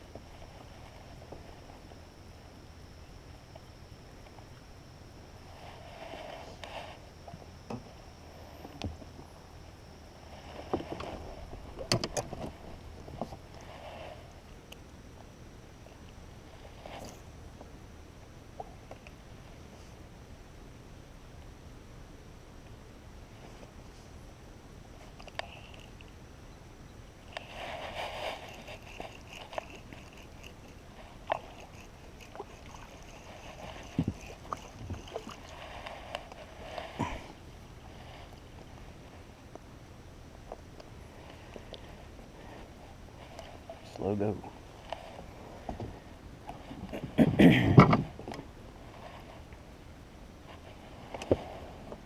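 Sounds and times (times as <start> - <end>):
knocks and clatters in a boat: 10.4 - 13.6, 27.4 - 37.4, 42.6 - 49.6, 50.5 - 52.0
fishing gear clicks and knocks: 27.3 - 37.3.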